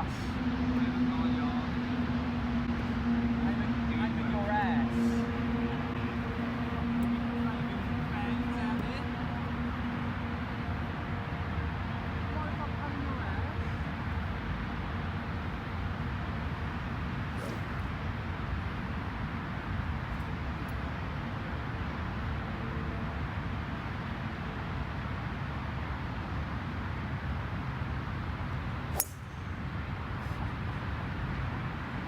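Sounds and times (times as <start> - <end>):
golf club striking ball: 17.4 - 17.8, 28.9 - 29.6.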